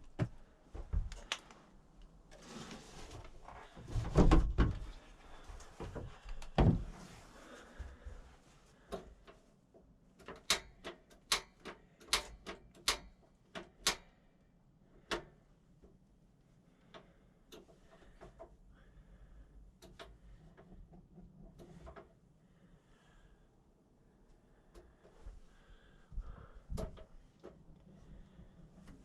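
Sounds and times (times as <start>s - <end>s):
sharp irregular clicks and taps: 10.2s - 14.2s.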